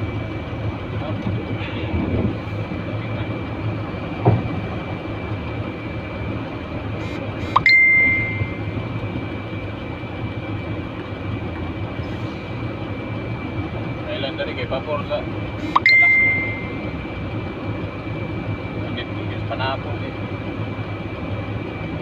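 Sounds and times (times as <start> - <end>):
truck engine idling: 0.0 - 22.0
short electronic beep: 7.4 - 8.7, 15.6 - 16.8.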